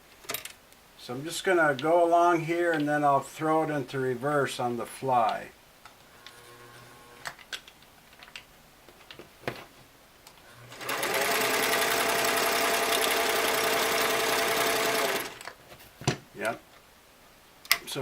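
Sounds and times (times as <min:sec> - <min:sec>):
sewing machine sewing: 0:10.6 - 0:15.5.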